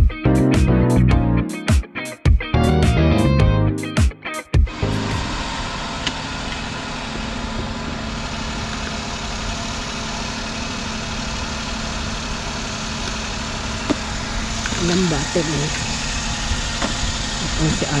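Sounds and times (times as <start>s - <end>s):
car engine idling: 4.8s - 18.0s.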